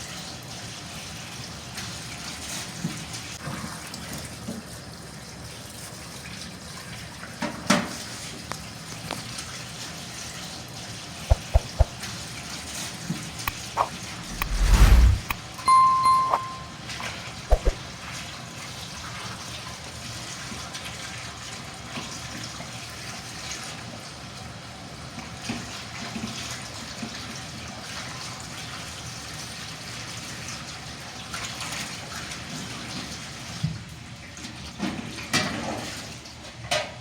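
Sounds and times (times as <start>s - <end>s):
sharp knock: 11.3s - 11.9s.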